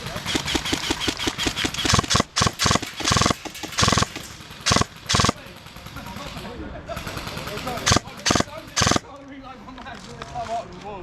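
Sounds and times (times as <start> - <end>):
airsoft guns firing: 0.0 - 5.8, 7.1 - 9.2.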